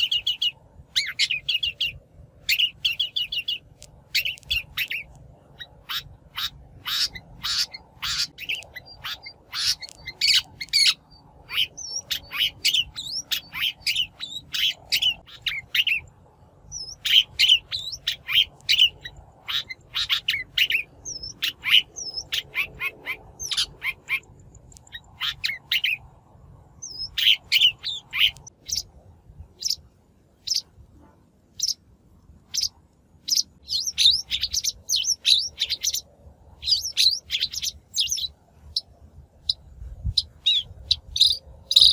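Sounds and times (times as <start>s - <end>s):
shrike chirping calls: 0.0s - 16.1s, 32.5s - 41.9s.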